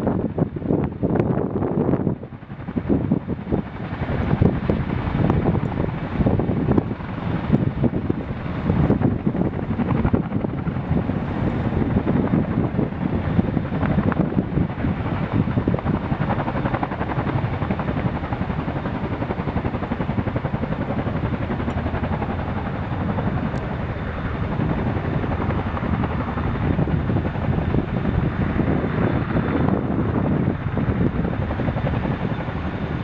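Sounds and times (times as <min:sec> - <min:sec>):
helicopter rotors chopping: 0:00.0 - 0:33.0.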